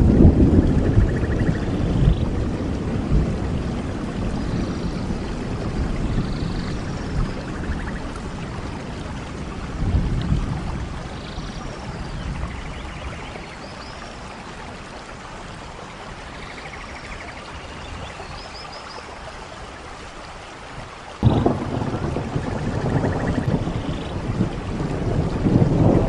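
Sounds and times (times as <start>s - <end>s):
low thunder rumble: 0.0s - 13.4s, 21.2s - 26.0s
steady rainfall: 0.0s - 26.0s.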